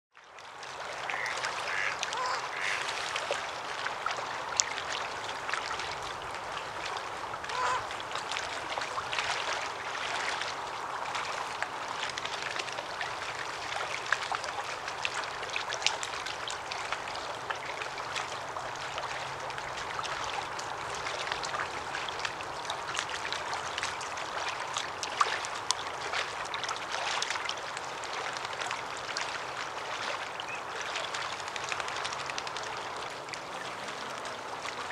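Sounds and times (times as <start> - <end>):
water birds quacking and honking: 0.7 - 12.0, 29.4 - 34.9.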